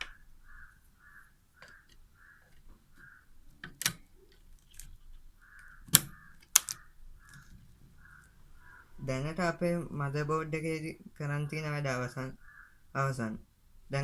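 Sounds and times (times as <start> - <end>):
crow cawing: 0.0 - 3.3, 5.4 - 9.0, 12.4 - 12.9.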